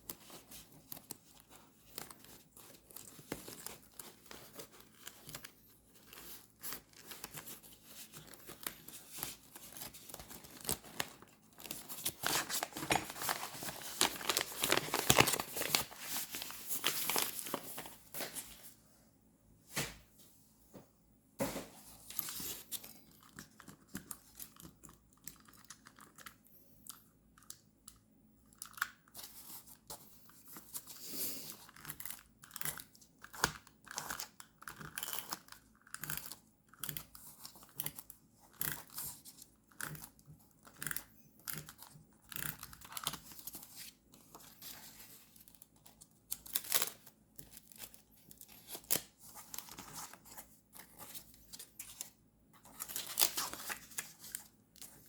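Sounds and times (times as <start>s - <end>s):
paper tearing and crinkling: 6.2s - 18.4s.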